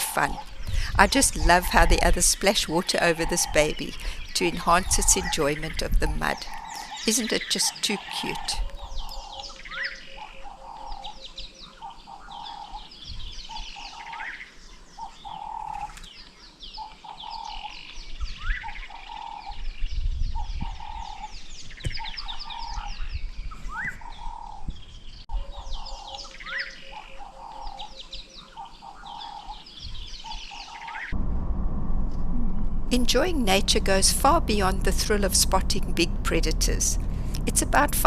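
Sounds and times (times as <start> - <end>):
birds chirping and whistling: 0.0 - 31.2
low hooting bird call: 2.9 - 14.4, 25.3 - 31.2.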